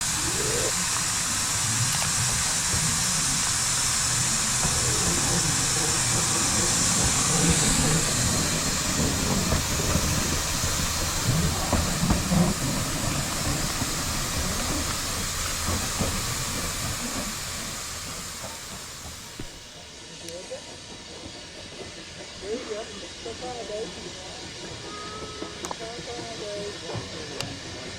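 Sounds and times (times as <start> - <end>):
steam locomotive hissing: 0.0 - 27.9.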